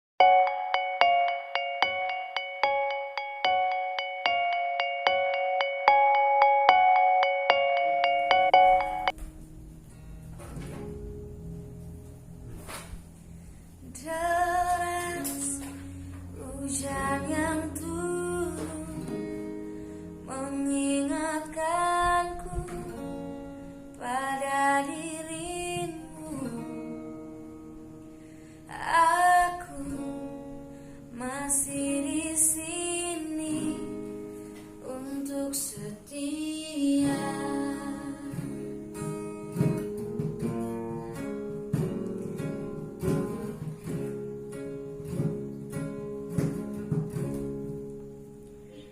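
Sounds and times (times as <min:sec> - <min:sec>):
strummed guitar: 0:00.2 - 0:48.9
woman singing: 0:13.8 - 0:19.5, 0:20.2 - 0:27.3, 0:28.7 - 0:30.4, 0:31.1 - 0:34.2, 0:34.8 - 0:38.8, 0:43.0 - 0:43.9.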